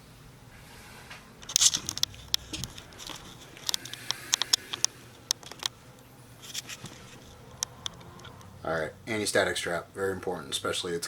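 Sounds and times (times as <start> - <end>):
small clicks and rustling: 1.4 - 5.8, 6.4 - 8.5.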